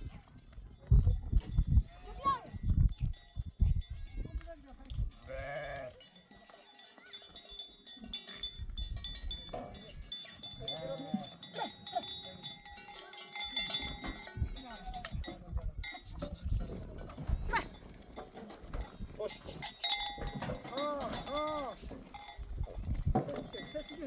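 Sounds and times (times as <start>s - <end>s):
sheep bells clinking: 0.1s - 24.0s
sheep bleating: 5.2s - 6.0s.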